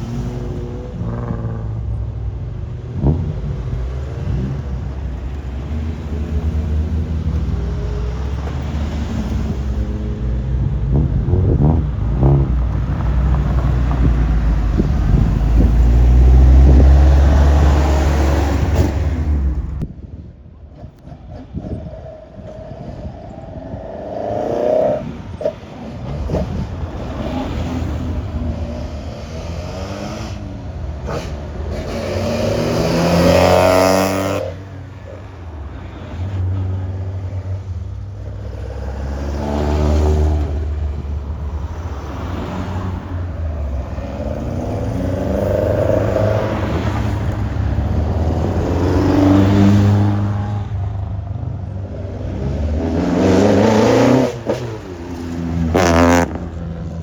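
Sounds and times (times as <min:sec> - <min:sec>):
cars driving past revving: 0:00.0 - 0:57.0.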